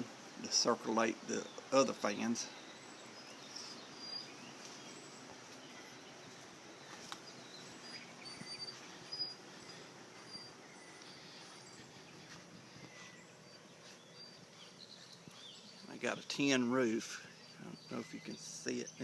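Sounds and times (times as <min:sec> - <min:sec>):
low hum of noise: 0:00.0 - 0:19.0
high bird chirps: 0:02.6 - 0:16.0.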